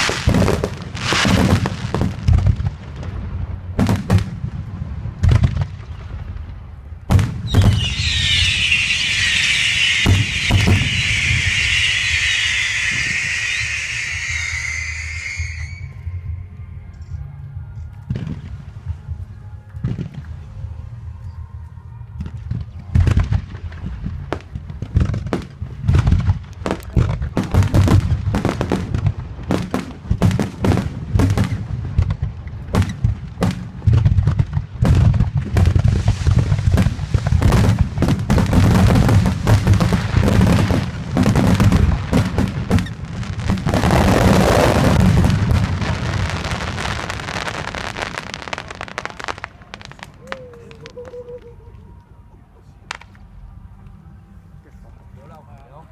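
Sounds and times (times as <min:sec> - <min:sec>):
fireworks bangs and booms: 0:00.0 - 0:15.8, 0:22.2 - 0:51.1
fireworks crackling: 0:00.0 - 0:16.2, 0:22.2 - 0:51.7.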